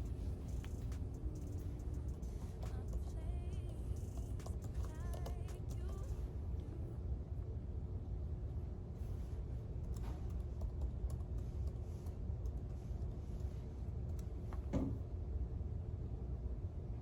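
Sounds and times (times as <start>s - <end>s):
steady low hum: 0.0s - 17.0s
computer keyboard typing clicks: 4.0s - 6.1s, 9.8s - 12.7s.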